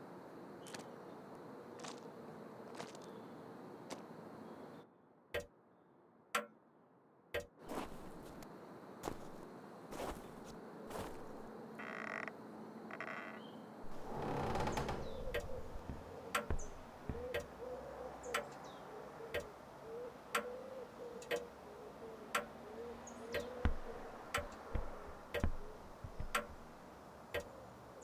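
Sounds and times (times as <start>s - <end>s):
sharp ticking: 13.9s - 17.5s, 23.4s - 26.8s.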